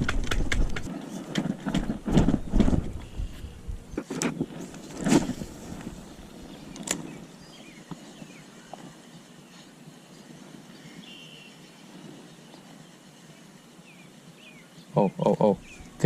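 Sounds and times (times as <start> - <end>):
handling thumps and rustles: 0.0 - 6.1
outdoor background noise: 0.0 - 16.0.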